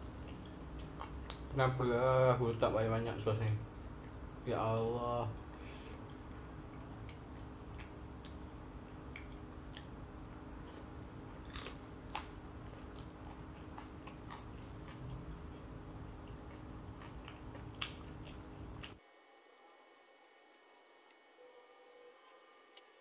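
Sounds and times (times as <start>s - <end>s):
chewing crunchy food: 0.0s - 1.8s, 5.4s - 19.0s.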